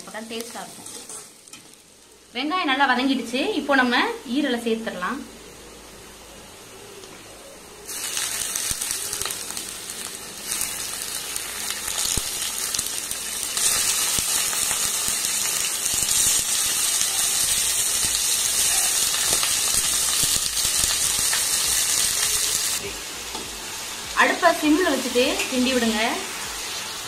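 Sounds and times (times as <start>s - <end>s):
meat sizzling in hot oil: 0.0s - 2.3s, 7.8s - 27.0s.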